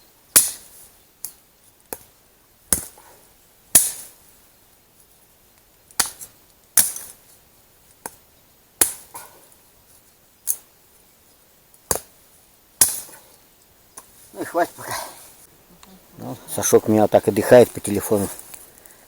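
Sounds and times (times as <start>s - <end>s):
axe chopping firewood: 0.3s - 0.8s, 1.9s - 3.1s, 3.7s - 4.2s, 6.0s - 7.2s, 8.8s - 9.4s, 11.8s - 12.2s, 12.8s - 13.3s.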